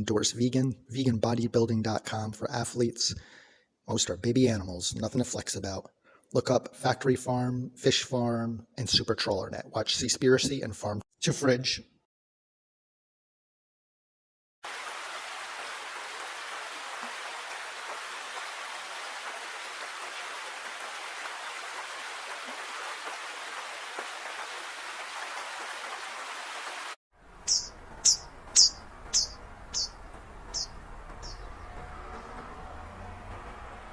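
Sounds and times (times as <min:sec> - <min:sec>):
steady hiss of running water: 0:14.6 - 0:27.0.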